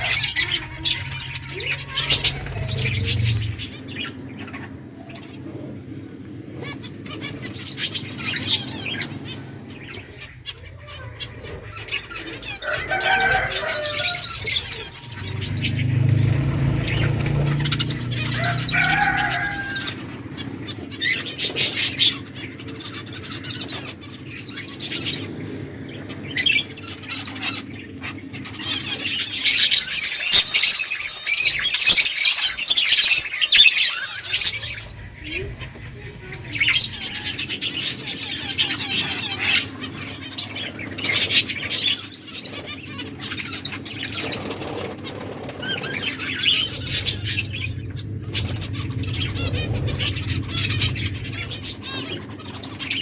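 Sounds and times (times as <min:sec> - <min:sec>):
wing flutters: 0:00.0 - 0:03.9, 0:09.7 - 0:20.3, 0:29.1 - 0:38.6, 0:44.4 - 0:53.0
finches chirping: 0:00.0 - 0:04.2, 0:06.8 - 0:20.7, 0:28.9 - 0:40.0, 0:46.2 - 0:53.0.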